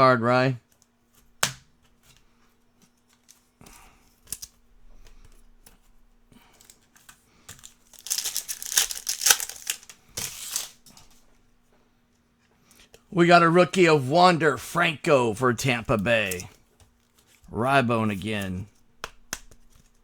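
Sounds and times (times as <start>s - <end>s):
foil wrapper crackling: 7.6s - 10.8s.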